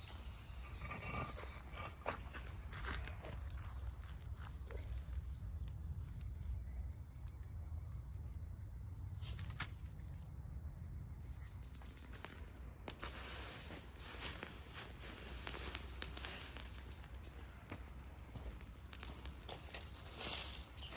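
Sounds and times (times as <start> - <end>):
faint insect trill: 0.0 - 20.9
high hiss of rustling: 13.0 - 16.9, 19.7 - 20.9.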